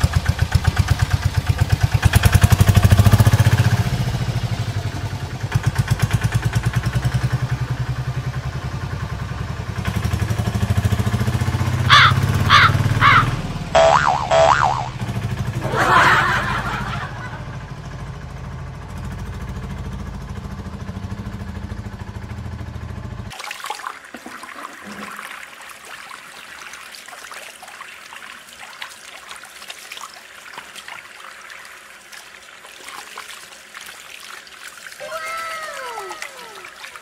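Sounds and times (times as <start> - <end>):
water pouring and splashing: 23.3 - 37.0.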